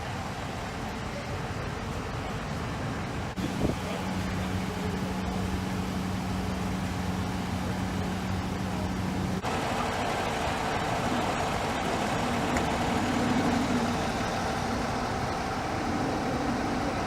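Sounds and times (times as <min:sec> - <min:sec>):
hissy background noise: 0:00.0 - 0:17.0
street noise: 0:00.0 - 0:17.0
steady even hum: 0:03.3 - 0:17.0.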